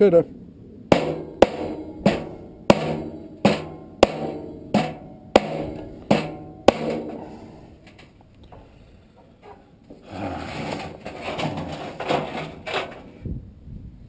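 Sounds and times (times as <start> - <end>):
hammer striking metal: 0.9 - 7.7.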